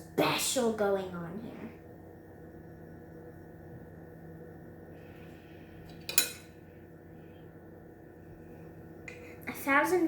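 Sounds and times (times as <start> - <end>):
low room hum: 0.0 - 10.0
utensil clinking against dish: 5.9 - 6.6.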